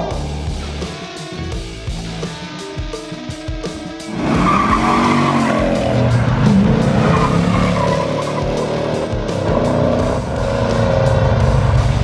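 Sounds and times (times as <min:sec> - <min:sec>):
rock music: 0:00.0 - 0:12.0
car engine revving: 0:04.0 - 0:12.0.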